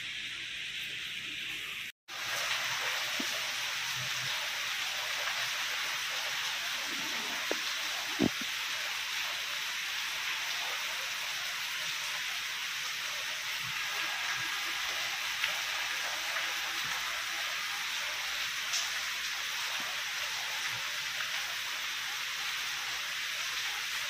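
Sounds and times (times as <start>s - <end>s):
heavy rain on foliage: 2.1s - 24.0s.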